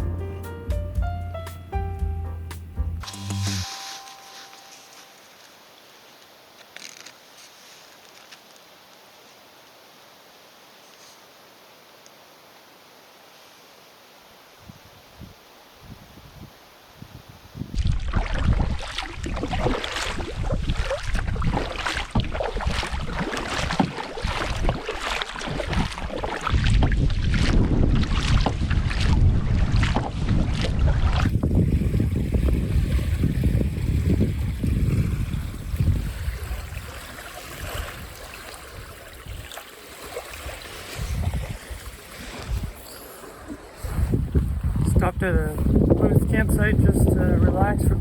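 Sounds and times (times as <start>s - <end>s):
wind buffeting microphone: 14.6s - 39.5s, 40.4s - 42.9s, 43.8s - 48.0s
water lapping against canoe: 17.6s - 46.0s.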